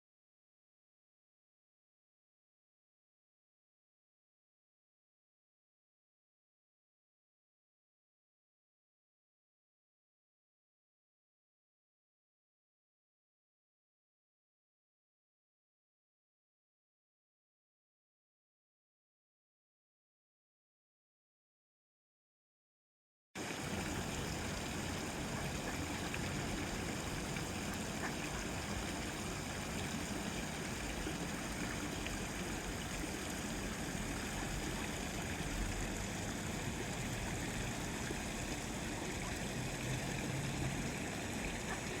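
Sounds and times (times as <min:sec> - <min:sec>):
running water rushing: 0:23.4 - 0:42.0.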